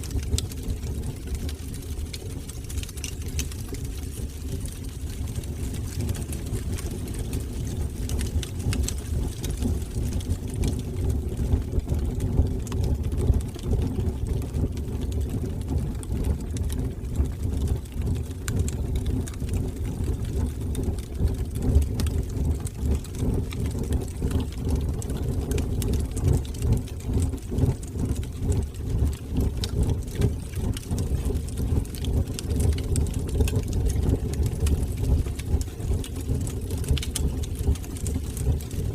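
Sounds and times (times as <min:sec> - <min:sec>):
fire crackling and popping: 0:00.0 - 0:38.9
low rumble of flames: 0:00.0 - 0:38.9.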